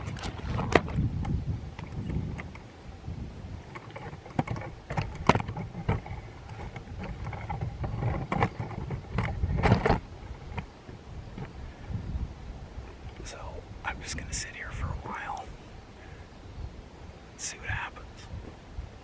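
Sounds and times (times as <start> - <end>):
handling clicks and rustles: 0.0 - 2.8, 3.6 - 11.6
wind rumbling on microphone: 0.0 - 19.0.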